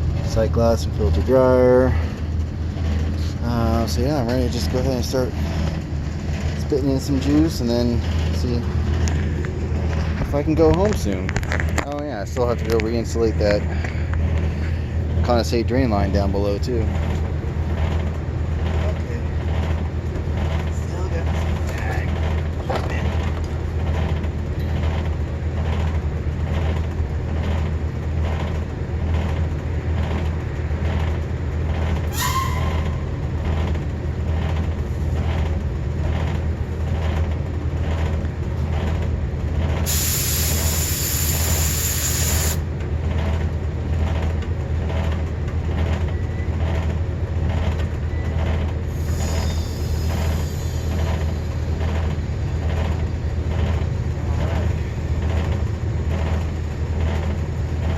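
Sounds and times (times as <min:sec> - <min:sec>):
refrigeration machinery humming: 0:00.0 - 0:57.9
loud gas hiss: 0:39.9 - 0:42.6.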